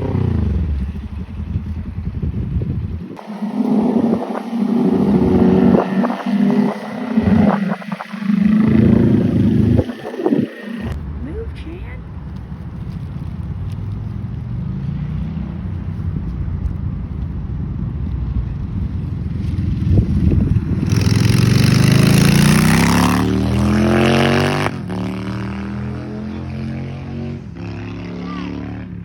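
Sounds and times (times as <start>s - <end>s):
car engine revving: 0.0s - 1.1s, 3.0s - 11.0s, 19.9s - 29.0s.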